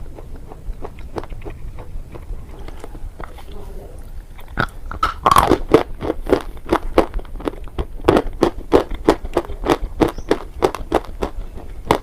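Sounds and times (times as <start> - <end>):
chewing hard brittle material: 0.0 - 12.0.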